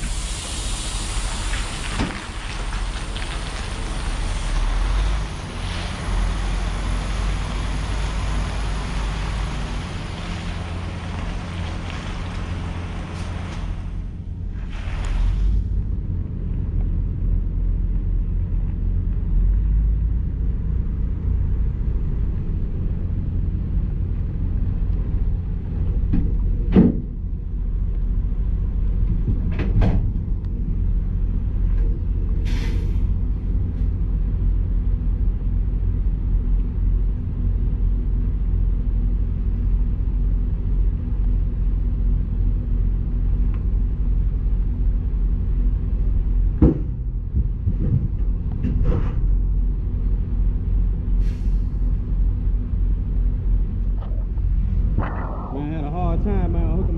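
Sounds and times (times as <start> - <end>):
truck diesel engine rumbling: 0.0 - 56.9
brief hiss: 32.4 - 33.2, 51.2 - 51.9.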